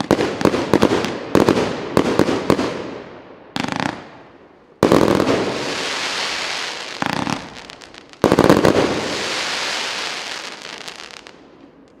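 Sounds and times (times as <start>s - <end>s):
firework bursts: 4.8s - 11.4s
firework crackling: 4.8s - 12.0s.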